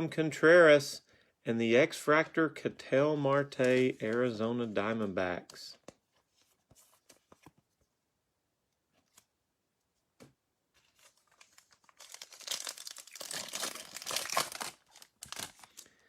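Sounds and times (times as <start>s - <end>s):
wrapper tearing and crinkling: 11.0s - 15.9s.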